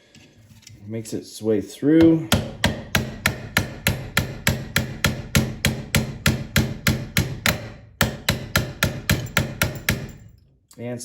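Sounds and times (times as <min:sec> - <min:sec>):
hammer tapping a punch: 0:02.0 - 0:10.3.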